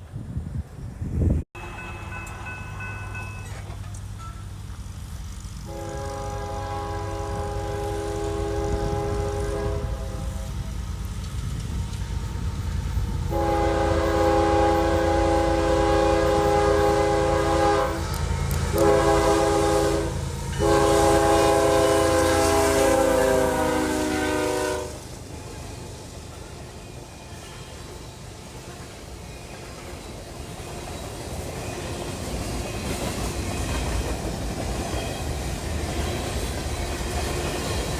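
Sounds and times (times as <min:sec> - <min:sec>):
rumble of passing train: 0:00.0 - 0:37.9
locomotive chord horn blasts: 0:05.6 - 0:10.8, 0:13.3 - 0:25.2.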